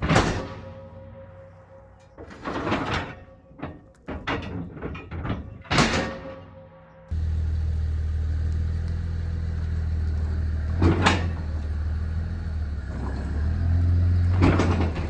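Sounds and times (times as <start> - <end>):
excavator diesel engine running: 7.1 - 15.0.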